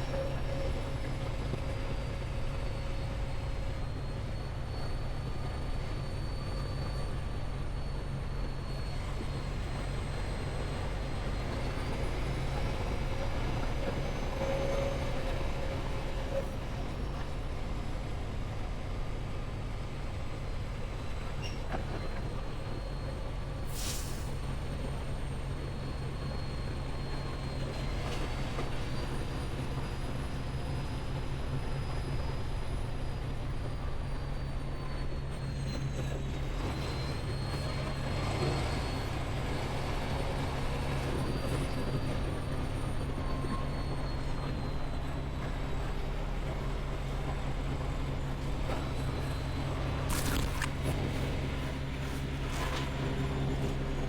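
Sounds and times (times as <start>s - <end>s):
road noise: 0.0s - 54.0s
truck engine drone: 0.0s - 54.0s
brief high hiss: 50.1s - 51.0s.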